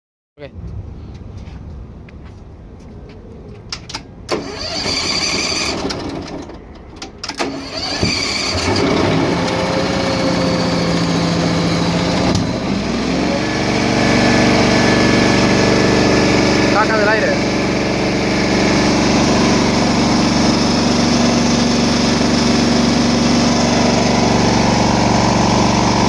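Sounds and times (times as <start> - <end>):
machine engine starting: 4.3 - 26.0.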